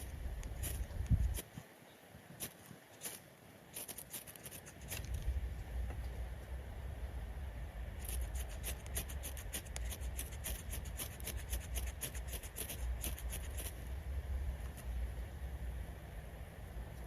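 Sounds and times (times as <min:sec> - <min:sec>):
wind on microphone: 0:00.0 - 0:01.5.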